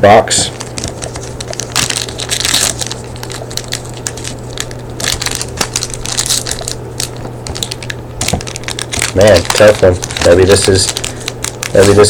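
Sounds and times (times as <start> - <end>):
steady low hum: 0.0 - 12.0
plastic wrapper crinkling: 0.5 - 12.0.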